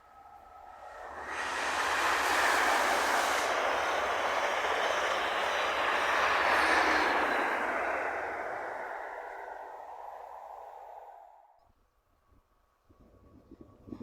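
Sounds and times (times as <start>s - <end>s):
train passing close by: 0.0s - 11.6s.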